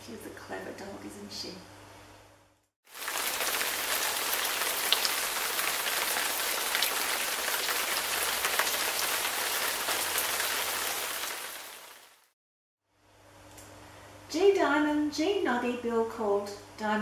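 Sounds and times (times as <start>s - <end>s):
rain falling: 2.9s - 12.3s.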